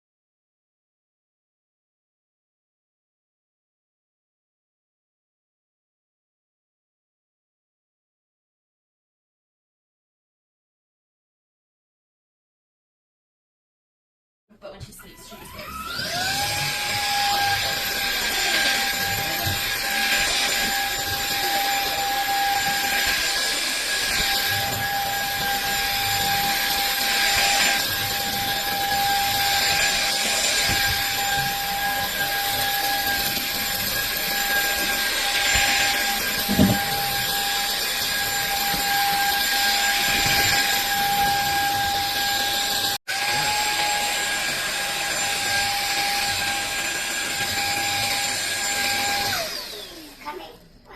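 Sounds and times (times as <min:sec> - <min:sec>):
vacuum cleaner whining: 0:14.6 - 0:50.9.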